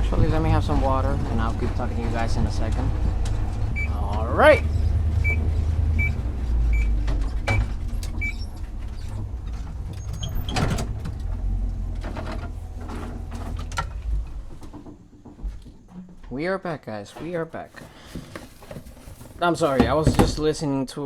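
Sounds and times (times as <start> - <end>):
truck engine rumble: 0.0 - 20.6
knocks: 17.2 - 20.5.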